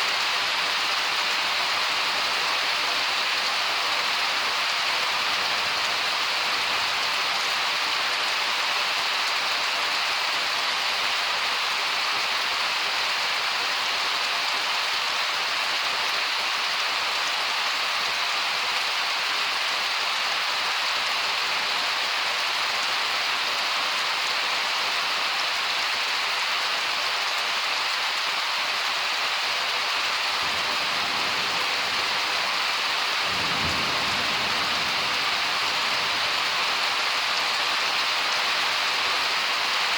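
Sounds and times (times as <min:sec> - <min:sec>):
heavy rain hissing: 0:00.0 - 0:39.9
low rumble of thunder: 0:30.5 - 0:36.5.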